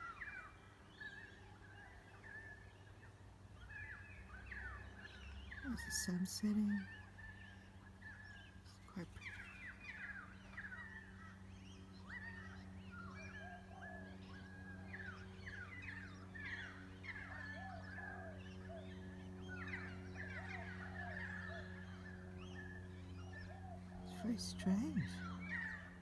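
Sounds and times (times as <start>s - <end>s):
flock of birds chirping: 0.0s - 26.0s
steady low hum: 5.5s - 26.0s.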